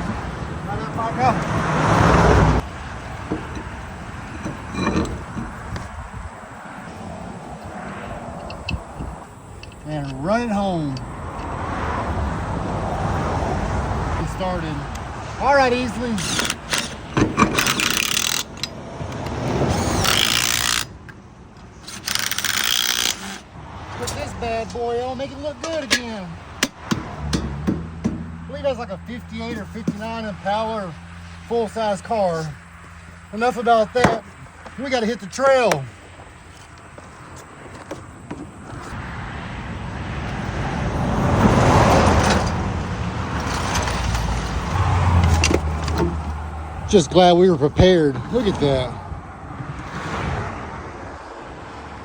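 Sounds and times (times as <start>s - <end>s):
road vehicle tyre and engine rush: 0.0s - 52.0s
socket tool working lug nuts: 2.6s - 6.3s, 7.5s - 11.6s, 14.8s - 30.6s, 31.4s - 39.0s, 42.0s - 47.1s.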